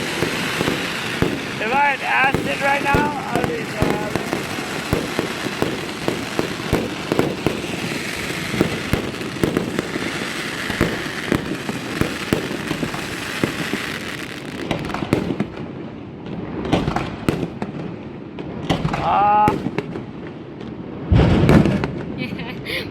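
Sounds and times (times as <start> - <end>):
fireworks hiss: 0.0 - 15.4
fireworks bangs: 0.0 - 22.9.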